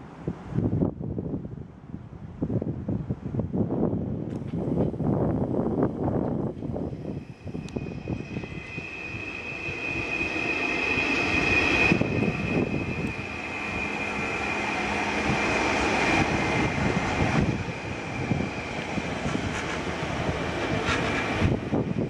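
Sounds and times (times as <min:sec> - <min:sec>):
train wheels rumbling on rails: 0:04.2 - 0:22.0
electric train whine: 0:04.4 - 0:22.0.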